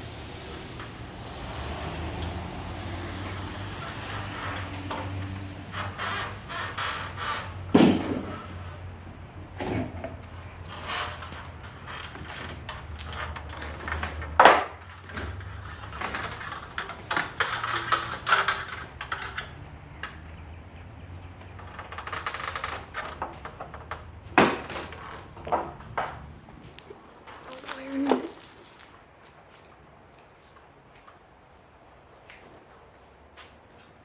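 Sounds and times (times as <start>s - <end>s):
tools and metal hardware clattering: 9.6s - 20.4s.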